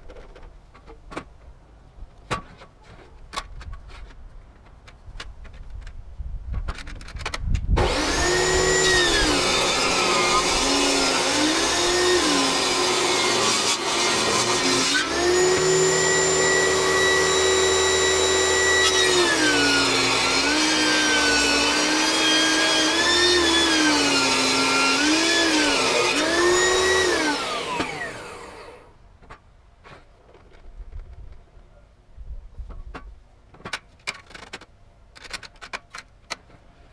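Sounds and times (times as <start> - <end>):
saw winding down: 7.8 - 28.9
table saw whining and bogging: 7.8 - 28.9.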